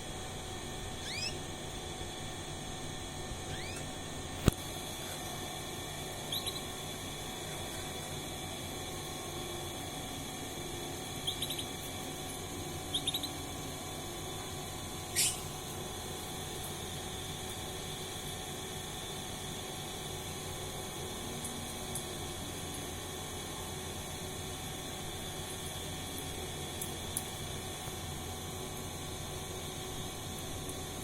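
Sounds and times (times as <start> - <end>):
steady low hum: 0.0 - 31.0
bird rising call: 1.0 - 1.4, 3.5 - 3.9, 15.1 - 15.4
young canary chirping: 1.0 - 1.4, 3.5 - 3.9, 6.3 - 6.6, 11.2 - 11.7, 12.9 - 13.3, 15.2 - 15.4.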